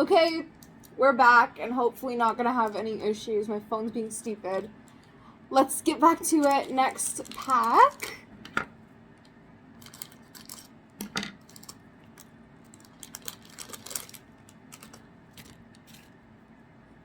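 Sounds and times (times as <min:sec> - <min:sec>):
foil pack crinkling: 0:06.1 - 0:08.3, 0:09.8 - 0:10.8, 0:11.4 - 0:16.3
cards rustling: 0:11.5 - 0:16.2.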